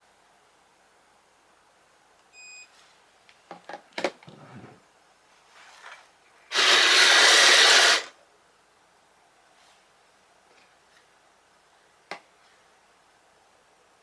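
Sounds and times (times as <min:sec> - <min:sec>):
toy vehicle motor whirring: 0:06.5 - 0:08.1.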